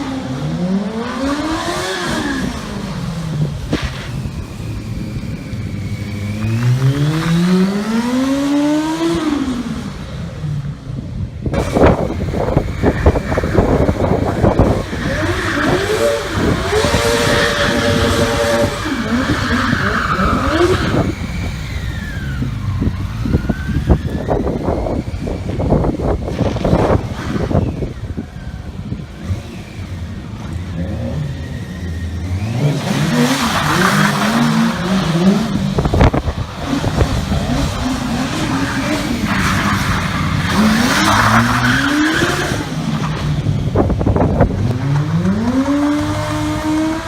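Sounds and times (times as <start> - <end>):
motorcycle engine revving: 0.0 - 47.0
tyre squeal: 11.6 - 25.4.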